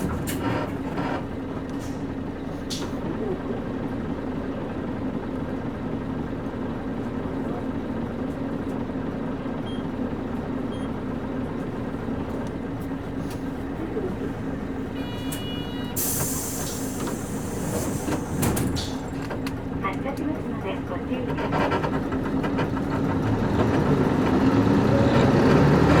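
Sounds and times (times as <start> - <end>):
bus diesel engine idling: 0.0 - 26.0
short electronic buzzer: 15.0 - 16.0
compressed air hiss: 16.0 - 18.3.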